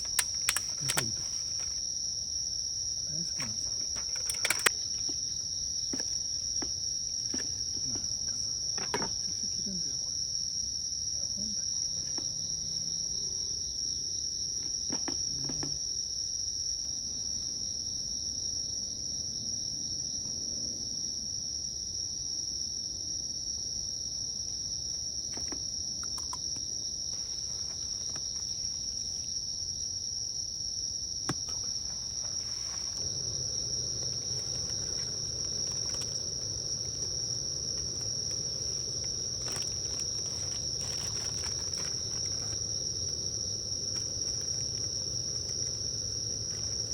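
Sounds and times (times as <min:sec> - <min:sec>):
faint clicks: 0:00.0 - 0:01.8
crickets chirping: 0:00.0 - 0:46.9.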